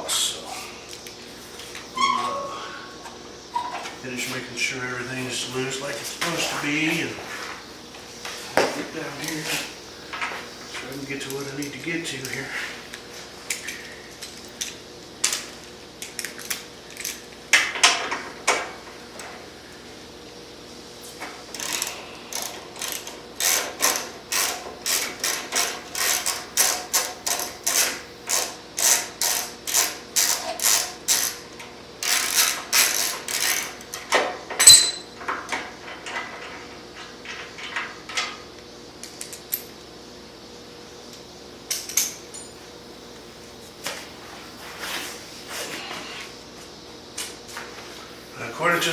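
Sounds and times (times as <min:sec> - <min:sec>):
socket ratchet clicking: 0:34.6 - 0:35.0
sharp metallic clink: 0:34.6 - 0:35.1.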